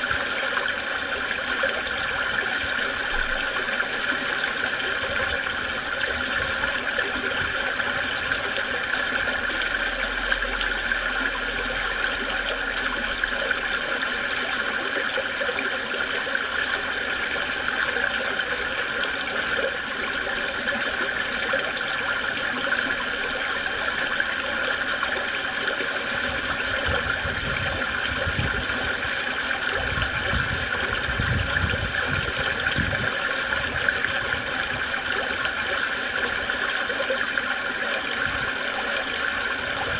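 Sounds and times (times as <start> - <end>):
creek water babbling: 0.0 - 39.9.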